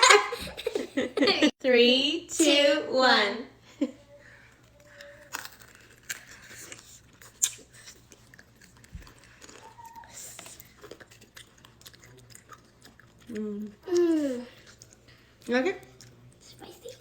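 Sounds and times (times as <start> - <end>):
wet crunching of pickle: 4.8 - 15.0.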